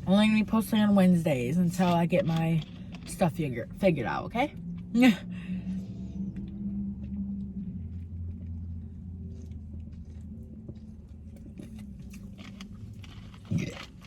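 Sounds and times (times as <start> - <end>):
steady low hum: 0.0 - 14.0
person chewing food: 5.8 - 14.0.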